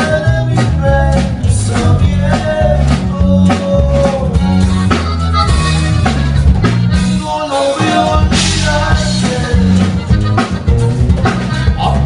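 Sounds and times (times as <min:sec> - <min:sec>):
person singing: 0:00.0 - 0:04.6, 0:07.0 - 0:10.5
bass guitar: 0:00.0 - 0:12.0
drums: 0:00.0 - 0:12.0
guitar: 0:00.0 - 0:12.0.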